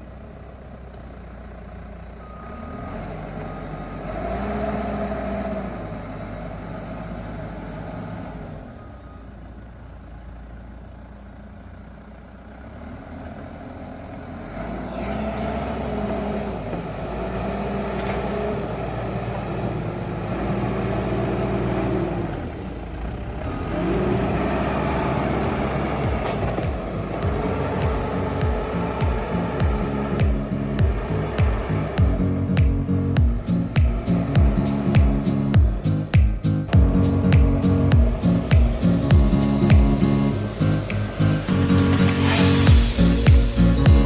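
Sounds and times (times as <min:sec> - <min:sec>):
heavy diesel machinery revving: 0:01.5 - 0:08.9, 0:12.5 - 0:44.0.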